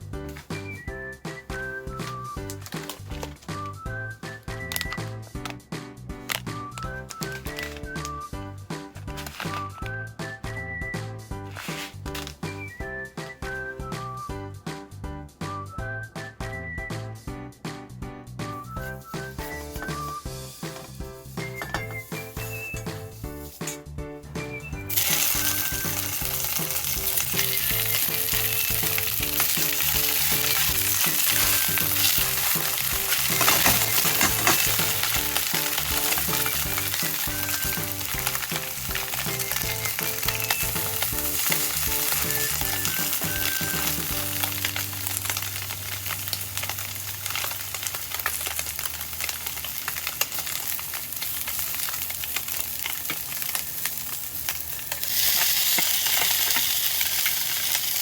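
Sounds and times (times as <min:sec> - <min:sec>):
food sizzling in a pan: 0:18.9 - 0:23.9, 0:24.8 - 0:58.0.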